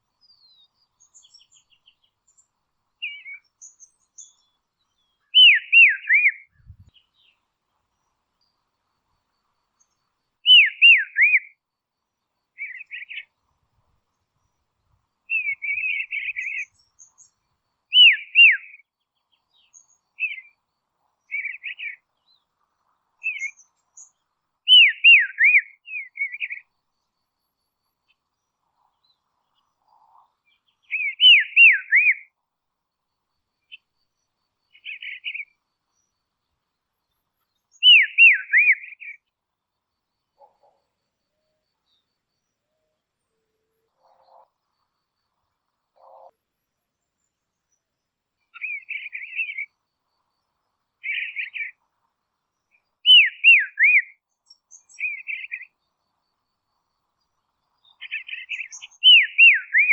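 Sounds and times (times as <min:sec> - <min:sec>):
songbird calling: 0:00.0 - 0:11.6, 0:12.4 - 0:32.4, 0:33.5 - 0:59.9.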